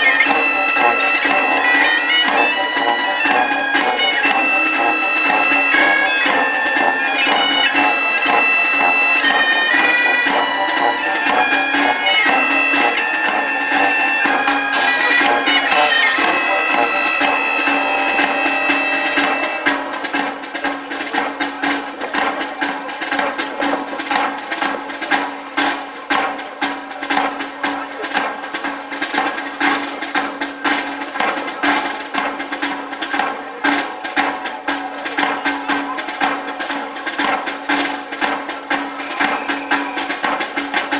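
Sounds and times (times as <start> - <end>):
bagpipe drone: 0.0 - 20.3, 37.8 - 40.9
bagpipes playing a melody: 0.0 - 20.3, 38.7 - 40.8
snare drumming: 0.0 - 40.9.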